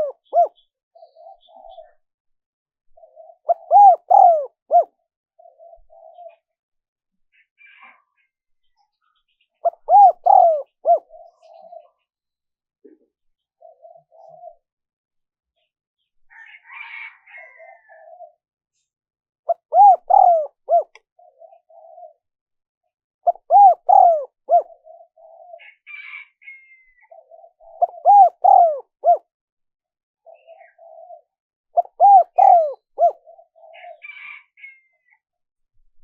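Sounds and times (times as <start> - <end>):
dove cooing: 0.0 - 2.0, 2.9 - 6.6, 9.6 - 12.0, 12.8 - 14.7, 16.5 - 18.4, 19.5 - 22.3, 23.3 - 26.3, 27.0 - 29.3, 30.2 - 34.7.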